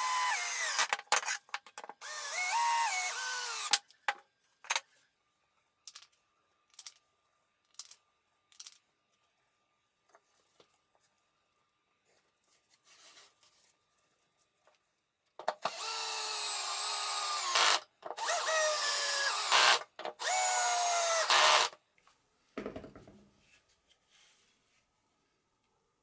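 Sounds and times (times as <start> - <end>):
electric drill whining into wood: 0.0 - 1.4, 2.0 - 3.8, 15.6 - 21.8.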